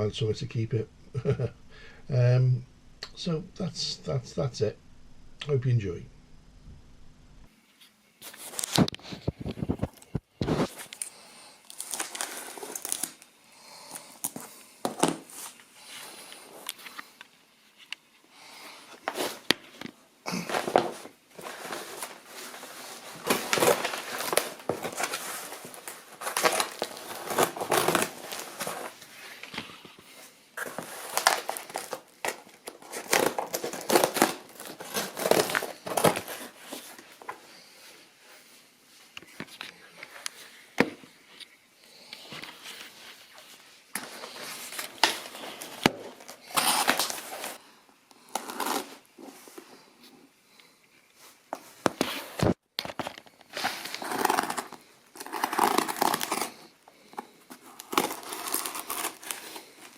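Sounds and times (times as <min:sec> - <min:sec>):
packaging crinkling and rustling: 0:08.2 - 0:17.8, 0:18.8 - 0:37.7, 0:42.2 - 0:47.6, 0:48.2 - 0:49.6, 0:51.5 - 0:59.9.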